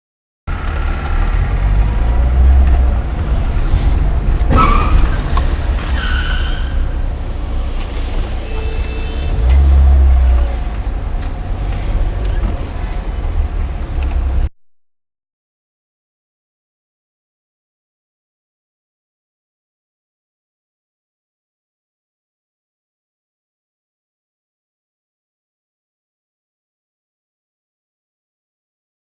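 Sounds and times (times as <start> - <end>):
car engine and road rumble: 0.5 - 14.5.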